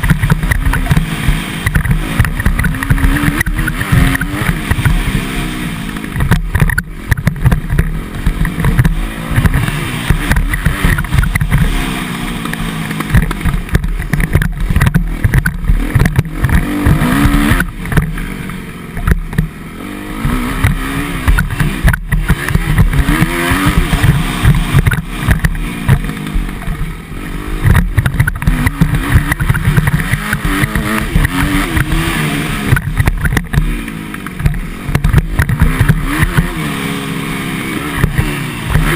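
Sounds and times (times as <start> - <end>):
motocross bike engine revving: 0.0 - 38.9.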